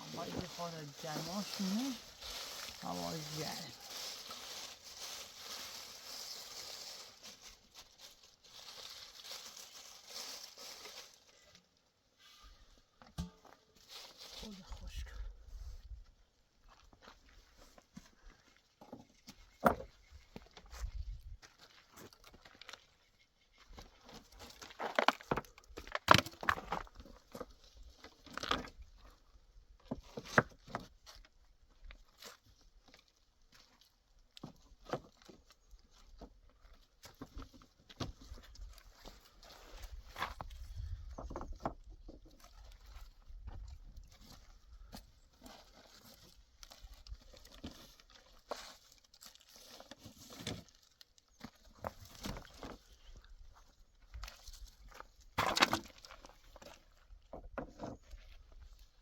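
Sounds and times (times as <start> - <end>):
faint rustling: 0.0 - 11.5
rustling: 0.0 - 12.7, 42.3 - 56.8.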